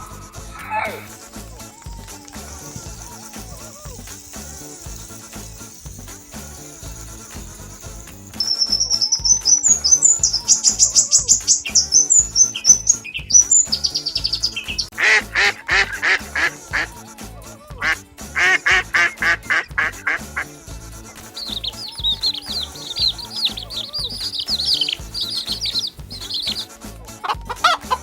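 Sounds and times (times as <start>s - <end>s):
music beat: 1.0s - 17.0s, 17.8s - 20.5s, 21.2s - 26.7s
bird chirping in high trills: 1.1s - 14.9s, 21.2s - 26.7s
duck-like quacks: 15.0s - 16.6s, 17.8s - 20.5s.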